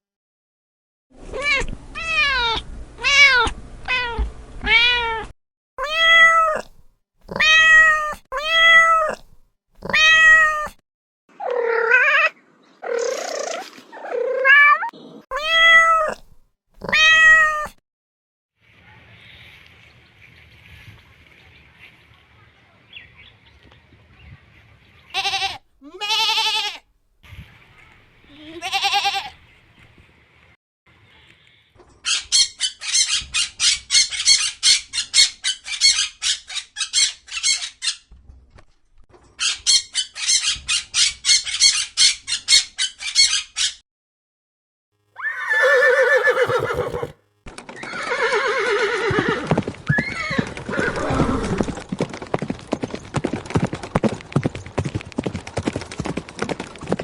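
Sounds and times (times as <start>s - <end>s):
farm animals calling: 25.1s - 26.8s, 28.5s - 29.4s, 45.2s - 47.2s
shrill squawking cries: 25.2s - 26.8s, 45.2s - 47.2s.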